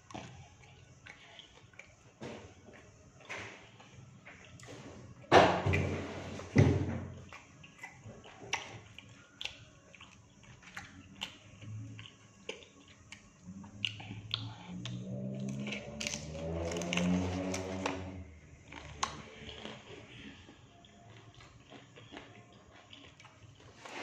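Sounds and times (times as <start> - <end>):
chewing with clicks and smacks: 0.0 - 5.9, 7.1 - 24.0
crunching crispy food: 8.2 - 24.0.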